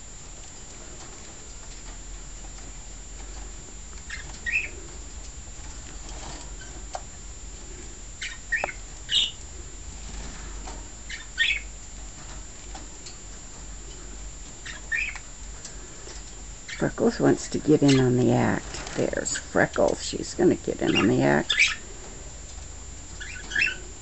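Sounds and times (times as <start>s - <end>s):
steady low hum: 0.0s - 24.0s
small birds chirping: 3.3s - 5.3s, 8.2s - 9.6s, 11.0s - 11.8s, 13.9s - 22.1s, 23.1s - 24.0s.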